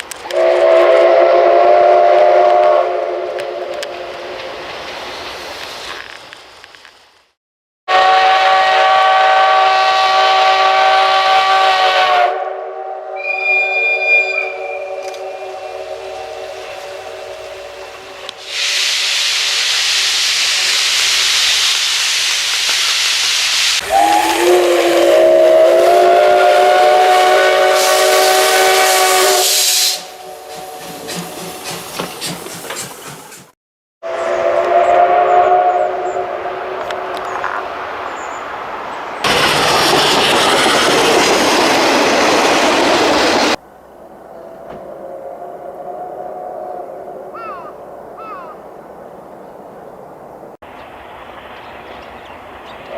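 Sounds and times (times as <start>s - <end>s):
steam whistle chord: 0.3s - 4.6s, 7.9s - 18.9s, 23.8s - 31.0s, 34.0s - 37.4s
steam venting hiss: 15.2s - 33.5s
train wheels clattering: 29.9s - 33.5s, 39.2s - 43.6s.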